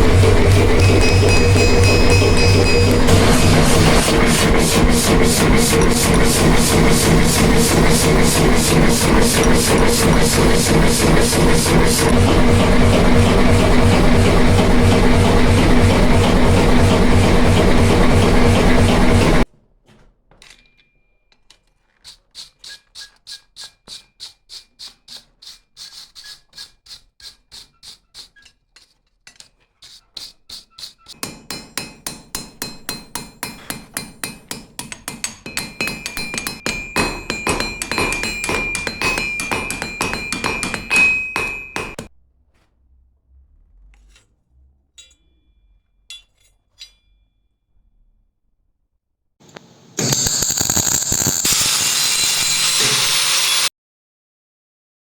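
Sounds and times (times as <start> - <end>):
hammer striking steel on anvil: 0.0 - 15.3, 31.1 - 42.1, 45.0 - 45.5, 46.1 - 47.2.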